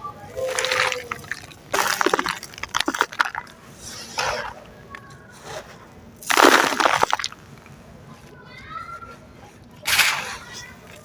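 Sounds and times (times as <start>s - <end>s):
sand-cement crunching in hands: 0.4s - 3.5s, 6.2s - 7.4s.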